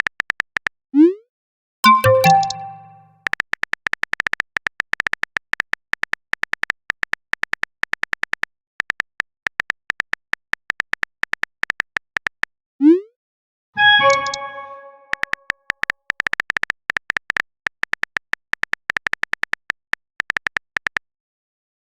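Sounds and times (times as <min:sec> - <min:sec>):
phone keyboard typing clicks: 0:01.8 - 0:03.1, 0:13.8 - 0:21.0.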